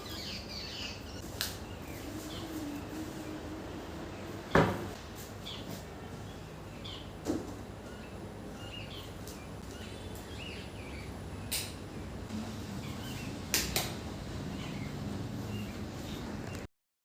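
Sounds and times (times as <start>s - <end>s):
small birds chirping: 0.0s - 3.4s, 5.3s - 12.2s, 12.8s - 13.4s, 14.4s - 16.7s
low steady hum: 0.0s - 16.7s.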